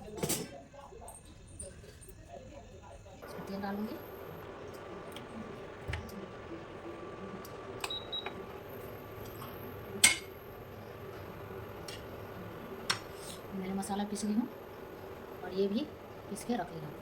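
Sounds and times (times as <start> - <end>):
kitchen utensils clinking: 0.0 - 0.6, 9.2 - 10.4
steady low hum: 2.5 - 17.0.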